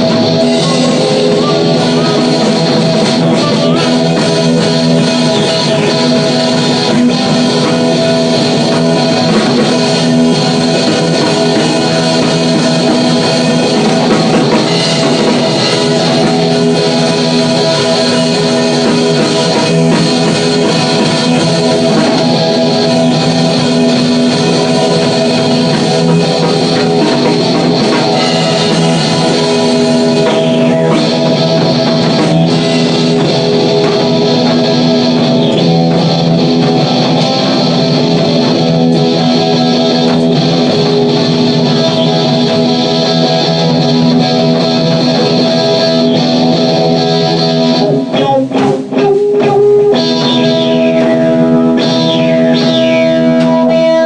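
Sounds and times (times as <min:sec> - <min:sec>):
drums: 0:00.0 - 0:54.0
electric guitar rock jam: 0:00.0 - 0:54.0.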